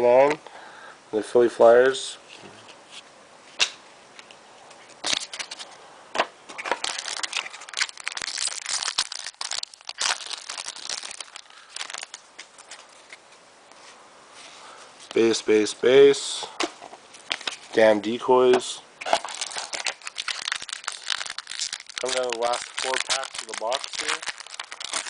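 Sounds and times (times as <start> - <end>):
card pack wrapper crinkling: 4.9 - 5.8, 6.5 - 13.3, 17.1 - 17.7, 19.0 - 25.0.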